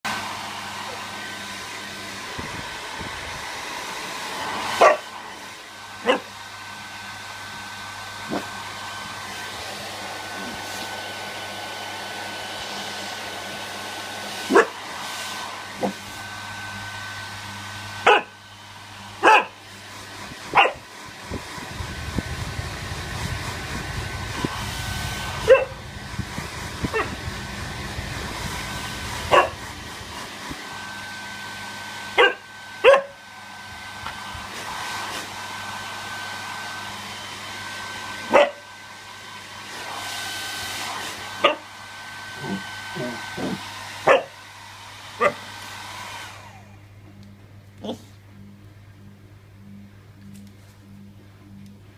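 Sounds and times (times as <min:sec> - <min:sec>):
hairdryer whining: 0:00.0 - 0:49.0
puppy barking: 0:04.8 - 0:05.1, 0:06.0 - 0:06.3, 0:14.5 - 0:14.8, 0:18.0 - 0:18.4, 0:19.2 - 0:19.6, 0:20.5 - 0:20.9, 0:25.4 - 0:25.8, 0:26.9 - 0:27.2, 0:29.3 - 0:29.6, 0:32.2 - 0:33.2, 0:38.3 - 0:38.7, 0:41.4 - 0:41.7, 0:42.4 - 0:44.4, 0:45.2 - 0:45.4, 0:47.8 - 0:48.1.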